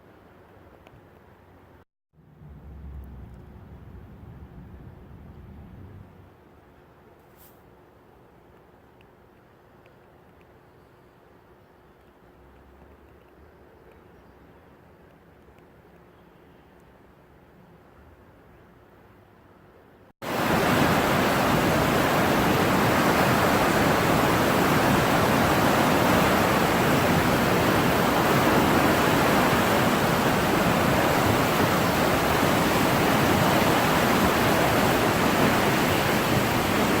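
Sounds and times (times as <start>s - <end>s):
rushing floodwater: 20.2s - 37.0s.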